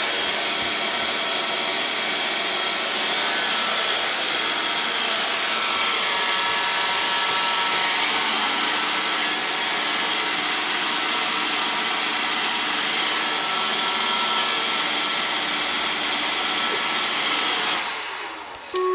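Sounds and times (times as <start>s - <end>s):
robot vacuum cleaner whirring: 16.4s - 18.9s.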